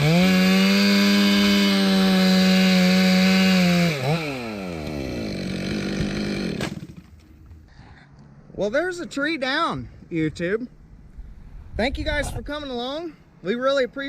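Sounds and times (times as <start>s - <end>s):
chainsaw running: 0.0s - 7.3s.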